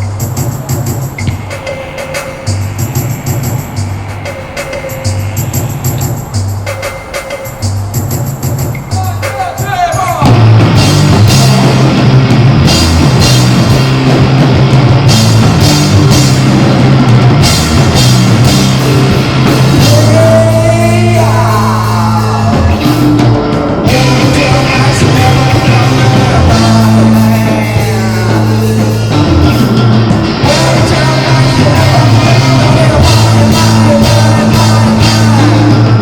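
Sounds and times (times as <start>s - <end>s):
drum kit: 0.0s - 36.0s
heavy bass low notes: 0.0s - 36.0s
live rock band: 0.0s - 36.0s
person singing: 19.7s - 29.6s, 30.4s - 36.0s.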